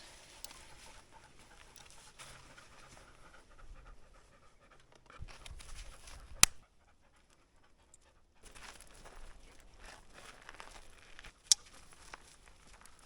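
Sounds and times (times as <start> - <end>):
dog panting: 0.5 - 8.6.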